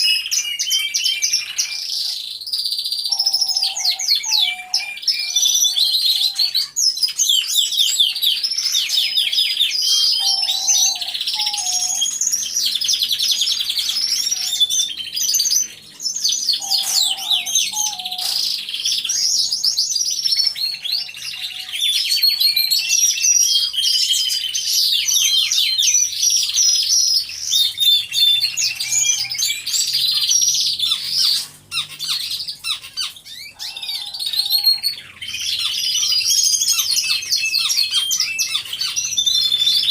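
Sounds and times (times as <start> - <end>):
canaries trilling and chirping: 0.0 - 39.9.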